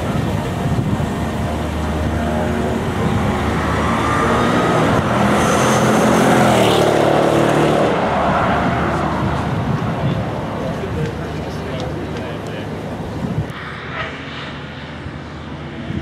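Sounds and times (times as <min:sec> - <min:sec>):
car engine passing by: 0:00.8 - 0:12.4.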